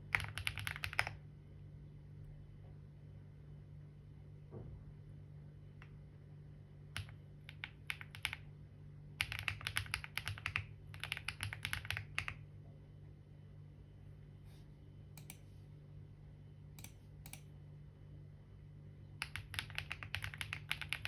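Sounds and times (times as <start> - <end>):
typing on computer keyboard: 0.0 - 1.2, 7.0 - 8.5, 9.2 - 12.4, 19.2 - 21.0
low steady hum: 0.0 - 21.0.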